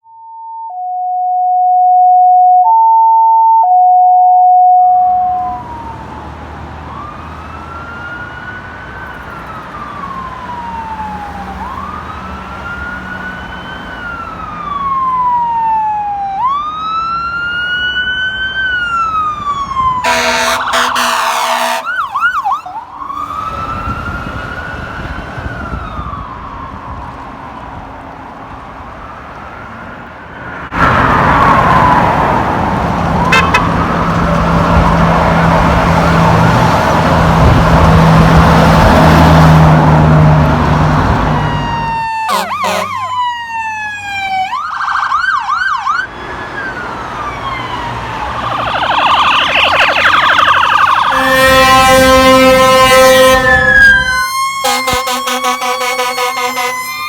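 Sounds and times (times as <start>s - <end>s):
electronic siren wailing: 0.6s - 26.4s, 33.3s - 34.1s, 41.2s - 57.0s
two-pitch electronic tones: 0.7s - 5.6s, 48.4s - 52.9s
siren warbling yelps: 0.8s - 6.0s, 18.8s - 23.8s, 41.3s - 57.0s
road noise: 4.8s - 57.0s
air horn blast: 20.0s - 22.2s, 33.3s - 33.8s, 42.3s - 43.1s, 50.9s - 57.0s.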